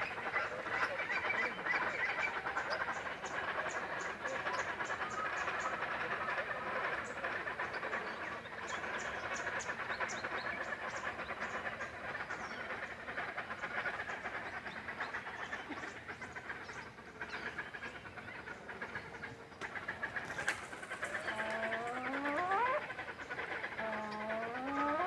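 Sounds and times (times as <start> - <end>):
bird chattering with high chirps: 20.6 - 25.0.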